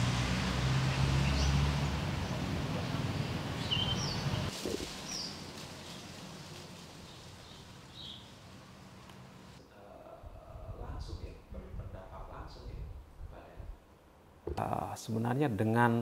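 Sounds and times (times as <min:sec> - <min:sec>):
short high bird calls: 0:03.6 - 0:04.5.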